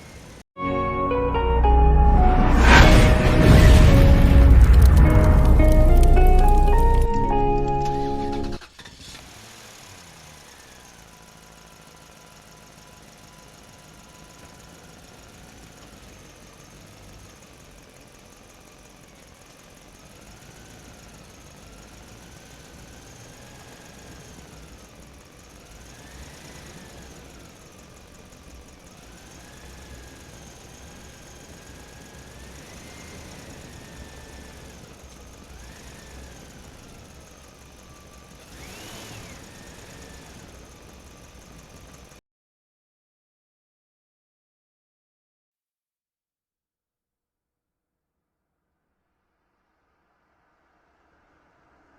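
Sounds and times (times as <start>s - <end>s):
low rumble: 1.8s - 7.2s
toy electric motor whining: 38.1s - 40.6s.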